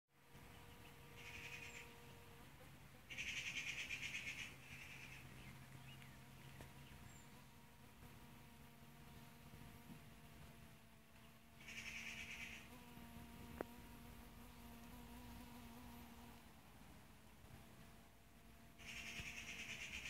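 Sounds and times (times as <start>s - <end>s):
bird trilling: 3.1s - 5.5s, 11.6s - 12.7s, 18.8s - 20.0s.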